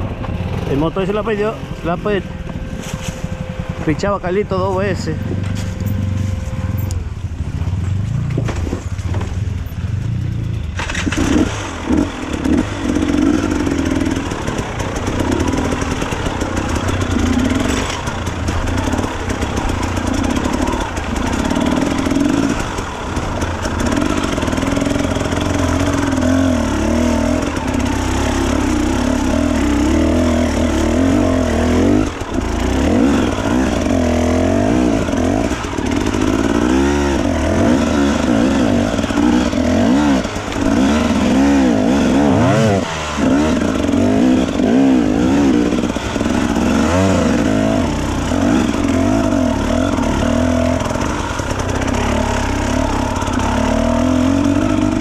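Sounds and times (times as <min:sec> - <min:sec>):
low engine rumble: 0:00.0 - 0:11.2
dirt bike engine revving: 0:00.0 - 0:55.0.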